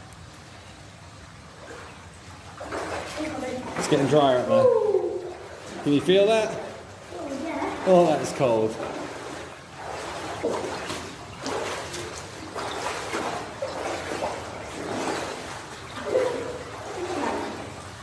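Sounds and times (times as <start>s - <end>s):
footsteps wading through water: 0.0s - 18.0s.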